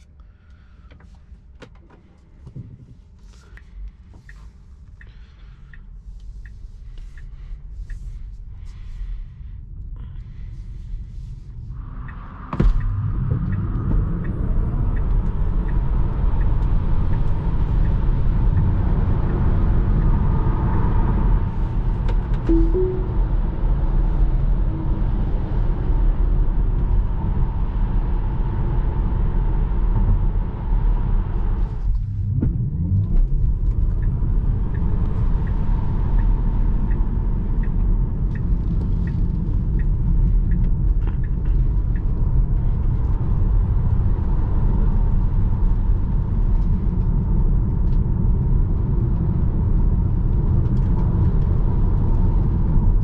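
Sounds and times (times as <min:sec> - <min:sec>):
road and tyre noise: 0:00.0 - 0:53.0
light even ticks: 0:03.4 - 0:08.2, 0:12.0 - 0:19.4.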